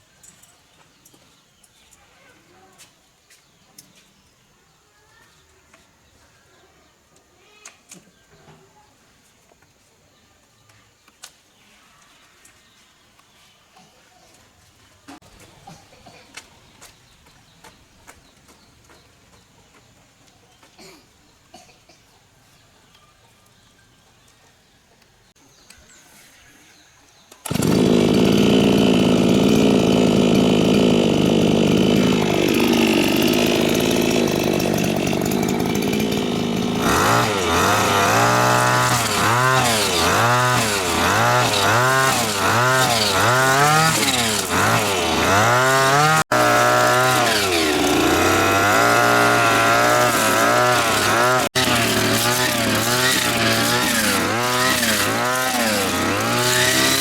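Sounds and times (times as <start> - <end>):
lawn mower engine revving: 27.4 - 57.0.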